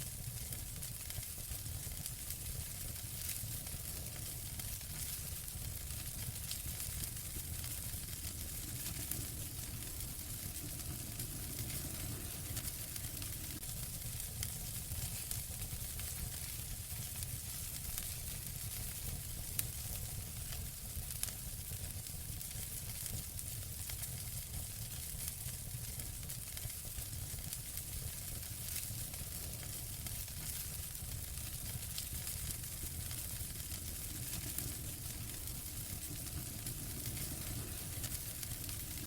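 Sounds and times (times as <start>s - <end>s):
wood fire crackling and popping: 0.0s - 39.0s
low rumble: 8.9s - 13.6s, 33.5s - 39.0s.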